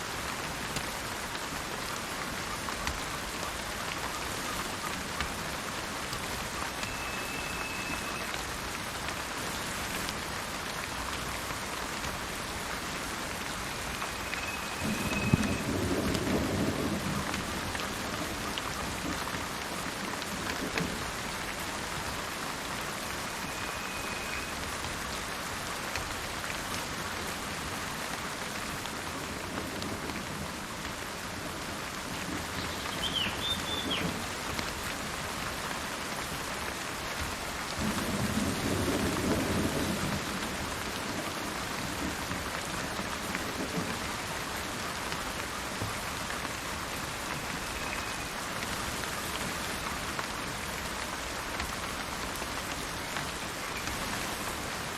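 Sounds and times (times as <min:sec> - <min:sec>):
steady rain: 0:00.0 - 0:54.9
bird whistles: 0:06.8 - 0:08.3, 0:32.6 - 0:34.1
low rumble of thunder: 0:14.6 - 0:19.2, 0:37.7 - 0:44.0.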